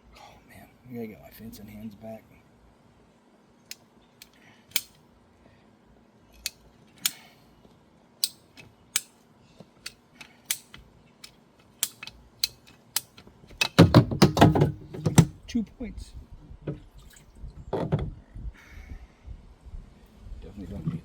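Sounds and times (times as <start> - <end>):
hand cutter snipping plastic pipe: 4.2 - 5.0, 9.8 - 15.3.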